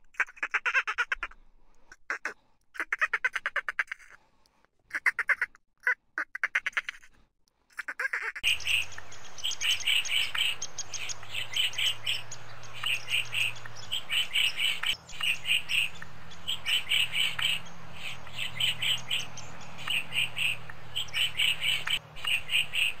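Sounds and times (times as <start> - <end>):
dolphin clicks and squeaks: 0.0 - 4.2, 4.9 - 7.1, 14.8 - 16.1, 21.4 - 23.0
woodpecker calling: 6.3 - 7.1, 7.8 - 23.0.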